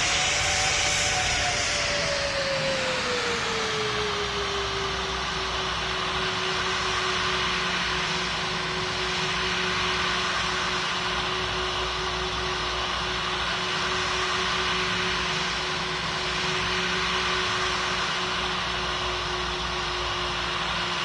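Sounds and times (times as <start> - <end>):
jet engines: 0.0 - 21.0.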